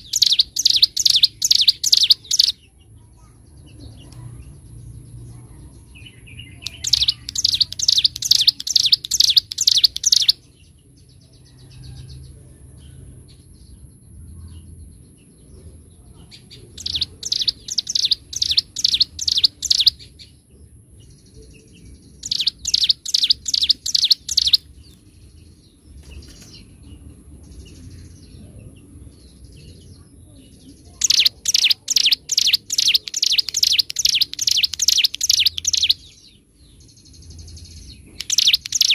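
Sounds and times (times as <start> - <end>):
bird singing sharp high notes: 0.0 - 2.6, 6.4 - 10.4, 16.8 - 20.1, 22.2 - 24.7, 31.0 - 36.2, 38.2 - 38.9
faint bird chirps: 0.0 - 38.9.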